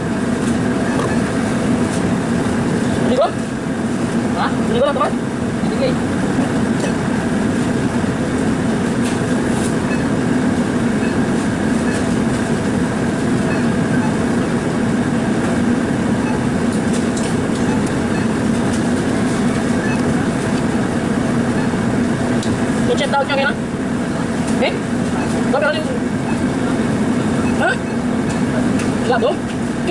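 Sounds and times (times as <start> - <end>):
vehicle engine and road drone: 0.0 - 29.9.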